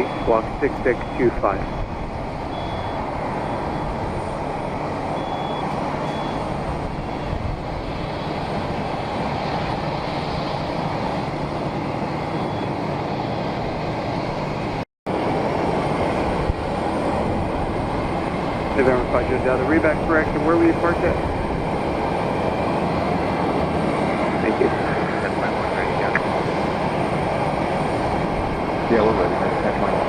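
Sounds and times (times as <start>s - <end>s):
jet engine rumble: 0.0s - 30.0s.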